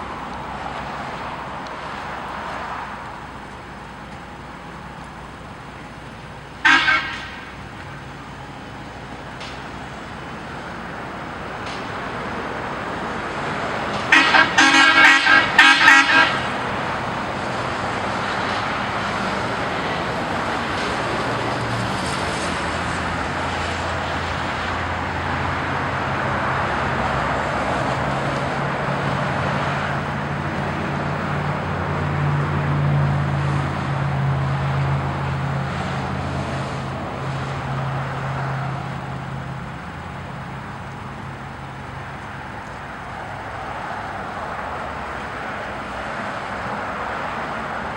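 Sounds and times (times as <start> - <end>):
road traffic noise: 0.0 - 47.9
car horn: 6.6 - 7.6, 14.0 - 16.6.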